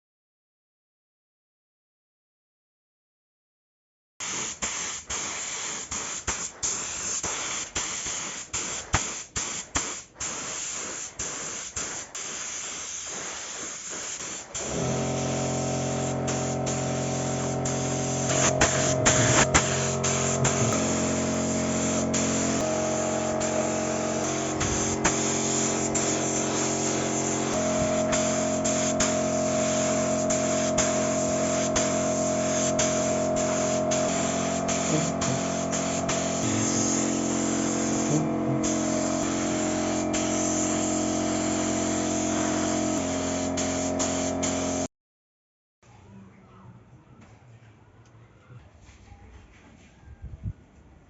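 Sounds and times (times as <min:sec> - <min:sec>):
spray paint can hissing: 0:04.2 - 0:44.9.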